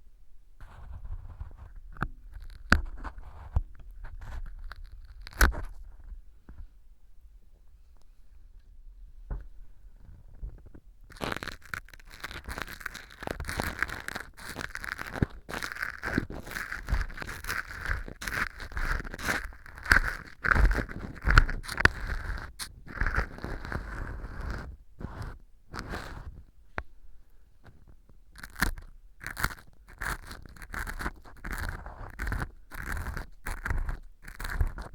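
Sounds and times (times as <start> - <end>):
ear pick scraping crunchy material: 10.6 - 26.5, 28.4 - 34.9.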